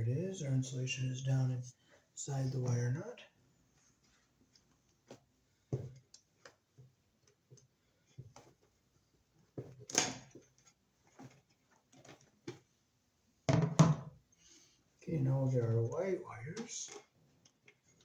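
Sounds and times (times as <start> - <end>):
electrical wires clicking and rustling: 3.8 - 12.8, 16.3 - 18.0.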